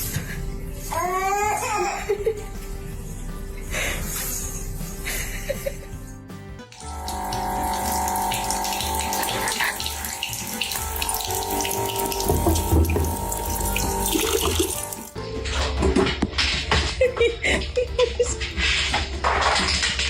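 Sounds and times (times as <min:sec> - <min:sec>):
running water: 0:06.8 - 0:15.2.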